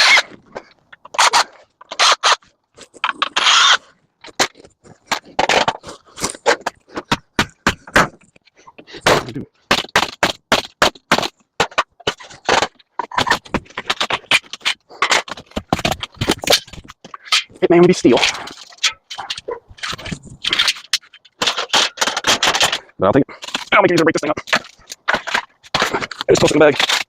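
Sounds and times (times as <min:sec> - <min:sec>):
metal clanks and scrapes: 0:11.8 - 0:27.0.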